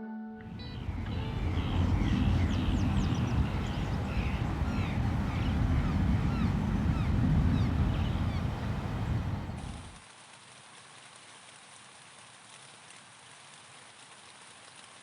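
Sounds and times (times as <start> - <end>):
low rushing noise: 0.4 - 10.0
birds chirping and whistling: 0.5 - 9.9.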